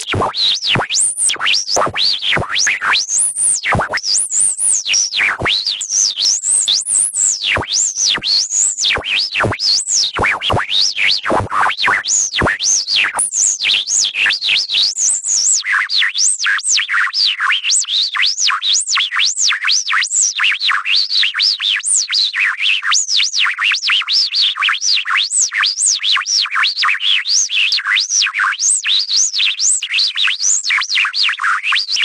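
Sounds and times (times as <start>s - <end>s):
pulsing gliding electronic tones: 0.0s - 2.5s.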